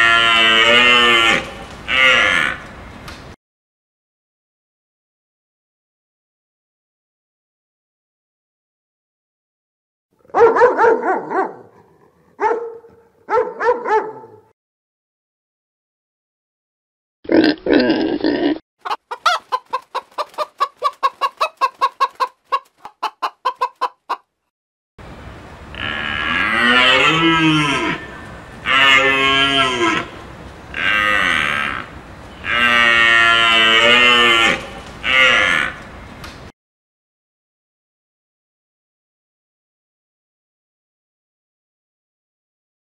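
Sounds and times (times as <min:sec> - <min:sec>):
cattle mooing: 0:00.0 - 0:02.6, 0:25.7 - 0:35.8
animal barking: 0:10.2 - 0:14.5.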